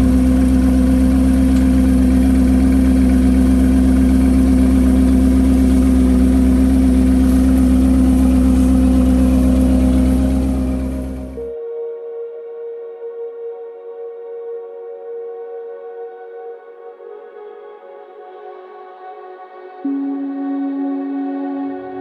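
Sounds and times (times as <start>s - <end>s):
car engine idling: 0.0s - 11.5s.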